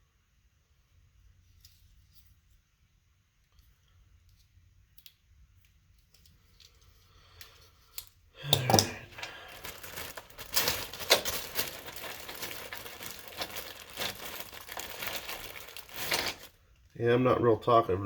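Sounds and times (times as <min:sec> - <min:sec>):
small irregular clicks: 0:03.4 - 0:08.2
crinkling and rustling handling: 0:03.5 - 0:17.0.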